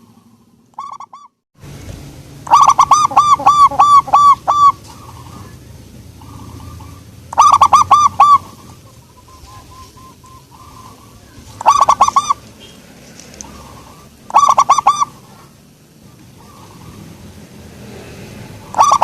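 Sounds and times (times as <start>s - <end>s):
dove cooing: 0.0s - 1.3s, 2.5s - 12.8s, 13.4s - 19.0s.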